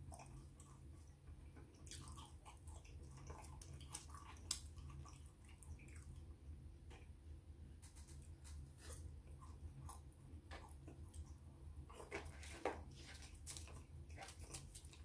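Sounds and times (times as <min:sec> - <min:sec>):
faint low steady hum: 0:00.0 - 0:15.0
person chewing chips: 0:11.9 - 0:15.0.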